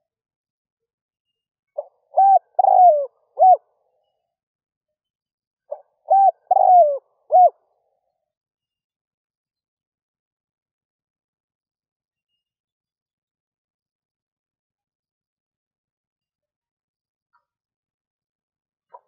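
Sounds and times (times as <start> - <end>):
dove cooing: 1.8 - 3.6, 5.7 - 7.6.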